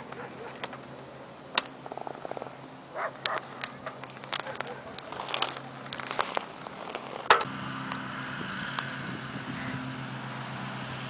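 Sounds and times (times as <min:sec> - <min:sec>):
motor humming: 0:06.4 - 0:11.0.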